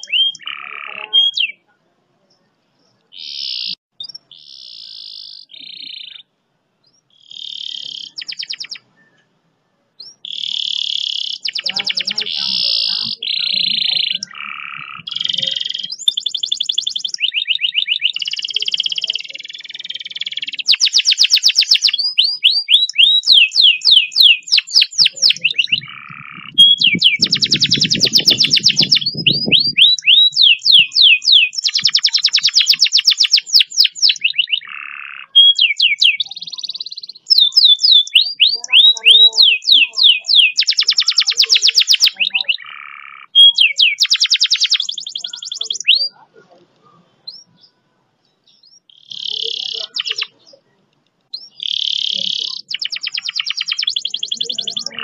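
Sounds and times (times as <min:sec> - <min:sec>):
canary singing rolls: 0:10.0 - 0:46.1.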